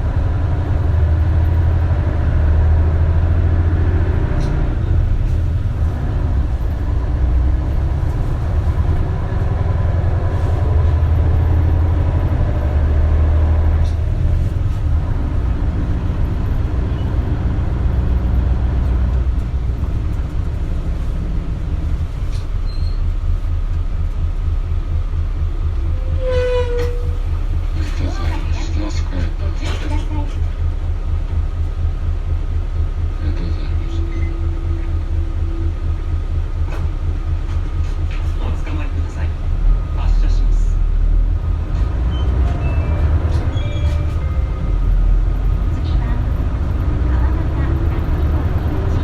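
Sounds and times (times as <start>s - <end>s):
bus engine drone: 0.0s - 49.0s.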